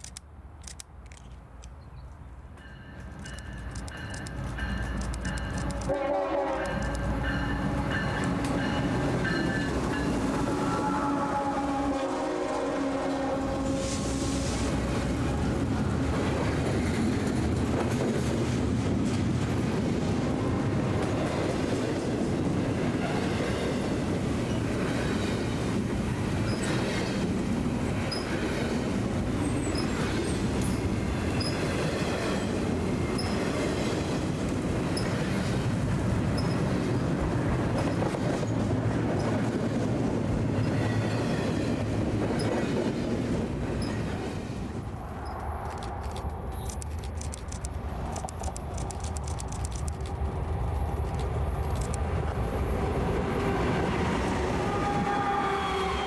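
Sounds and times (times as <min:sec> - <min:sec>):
train wheels rumbling on rail: 0:00.6 - 0:56.0
wheels clicking over rail joints: 0:45.2 - 0:53.2.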